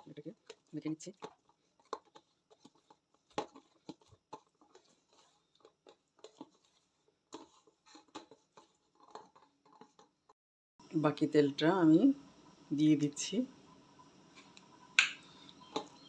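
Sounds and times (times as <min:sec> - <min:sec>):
hands kneading sticky dough: 0:00.0 - 0:10.3.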